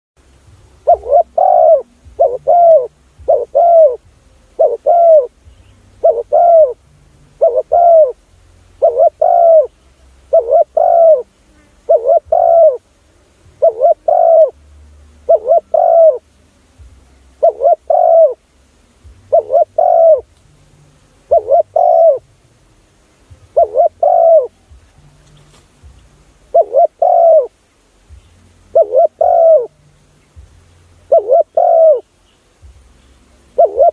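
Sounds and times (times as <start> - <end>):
dove cooing: 0.8 - 5.4, 6.0 - 6.8, 7.4 - 12.9, 13.6 - 14.6, 15.3 - 16.3, 17.3 - 18.5, 19.3 - 20.3, 21.2 - 22.2, 23.4 - 24.9, 26.5 - 27.6, 28.7 - 29.8, 31.0 - 32.1, 33.4 - 33.9.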